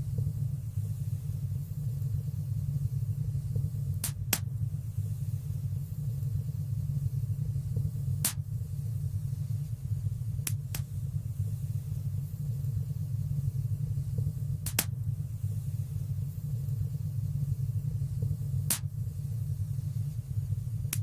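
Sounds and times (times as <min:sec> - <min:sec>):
low rumble of flames: 0:00.0 - 0:21.0
fire crackling pops: 0:03.8 - 0:04.7, 0:07.7 - 0:08.8, 0:10.3 - 0:11.2, 0:14.2 - 0:15.2, 0:18.2 - 0:19.1.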